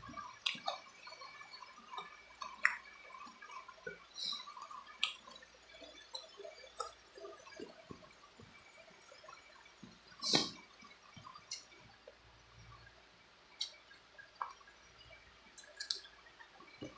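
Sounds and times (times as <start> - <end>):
wet chewing and lip-smacking: 0.2 - 5.4, 15.6 - 16.1.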